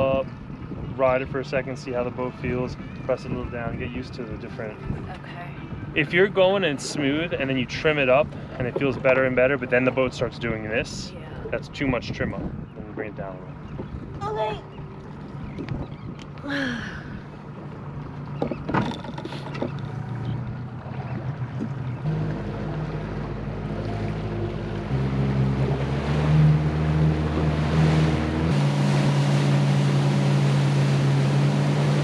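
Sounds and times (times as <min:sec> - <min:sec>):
rushing water: 0:00.0 - 0:32.0
wind: 0:00.0 - 0:32.0
outboard motor throttling up: 0:12.4 - 0:32.0.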